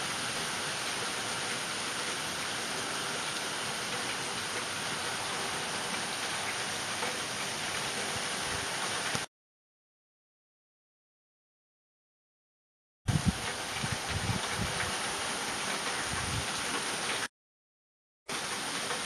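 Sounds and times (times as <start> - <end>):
heavy rain hissing: 0.0 - 9.3, 13.1 - 17.3, 18.3 - 19.0.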